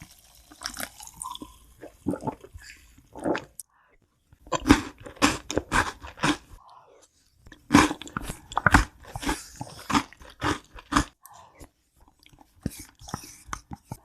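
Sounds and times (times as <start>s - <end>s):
chewing crunchy food: 4.4s - 6.6s, 7.4s - 14.0s.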